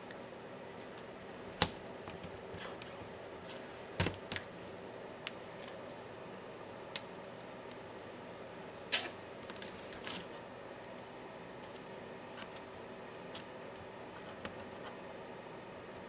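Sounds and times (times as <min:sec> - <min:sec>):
laptop parts clicking and scraping: 0:13.3 - 0:15.0.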